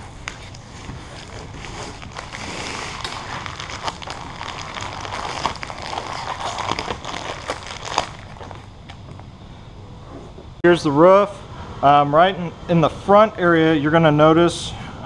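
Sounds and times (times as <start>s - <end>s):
tape ripping: 0.0s - 8.7s.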